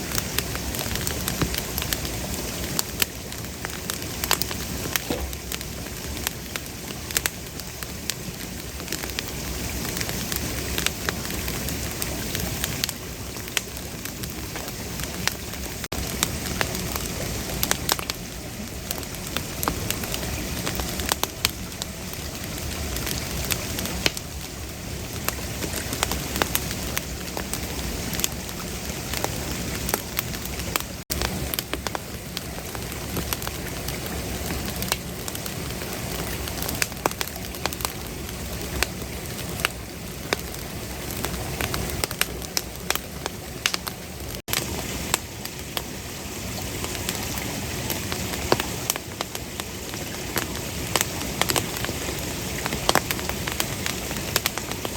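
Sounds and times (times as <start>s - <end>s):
campfire flame hissing: 0.0s - 54.9s
wood popping and crackling: 0.1s - 7.3s.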